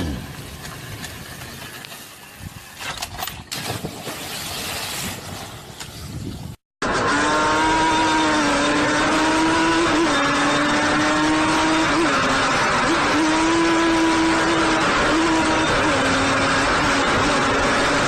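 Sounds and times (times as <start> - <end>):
road and wind noise: 0.0 - 18.0
motorcycle engine at high revs: 6.8 - 18.0.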